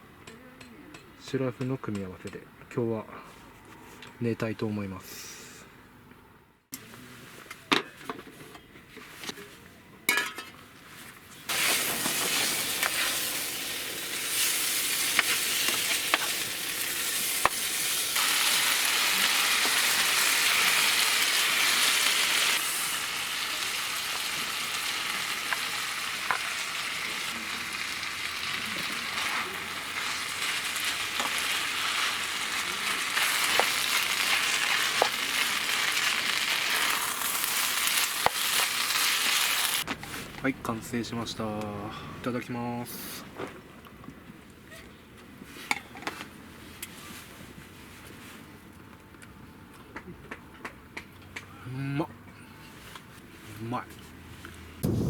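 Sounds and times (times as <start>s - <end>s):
food sizzling in a pan: 11.5s - 39.9s.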